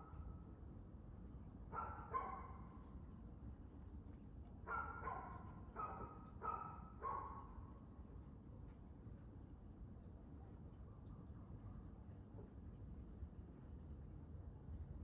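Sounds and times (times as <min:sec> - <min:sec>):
dog barking: 0:01.8 - 0:02.6, 0:04.7 - 0:07.4.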